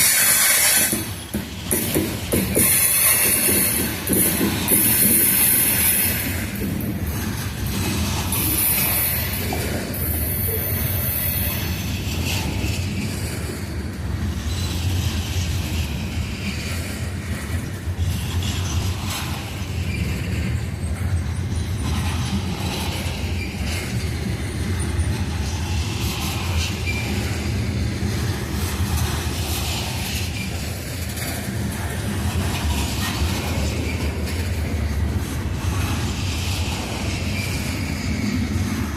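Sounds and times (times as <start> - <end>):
high-pitched wheel squeal: 0.0 - 1.2
train wheels rumbling on rail: 0.0 - 38.9.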